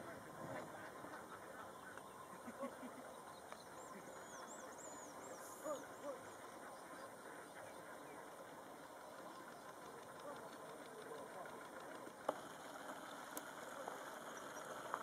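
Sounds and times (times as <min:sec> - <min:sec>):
bird honks: 0:00.0 - 0:03.2
small birds chirping: 0:00.0 - 0:15.0.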